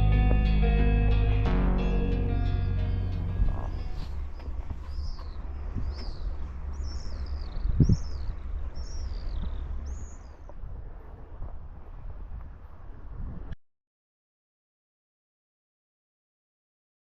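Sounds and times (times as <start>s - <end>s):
birds chirping: 0.0s - 11.2s
low rumble of wind or water: 0.0s - 13.6s.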